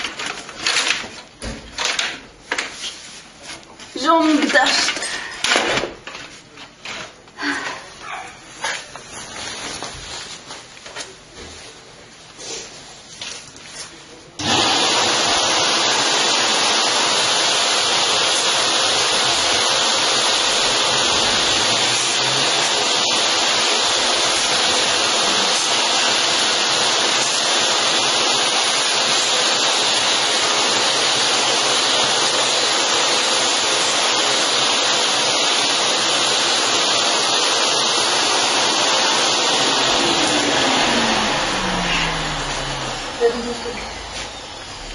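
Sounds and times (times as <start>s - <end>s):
compressed air hissing: 17.9s - 30.8s.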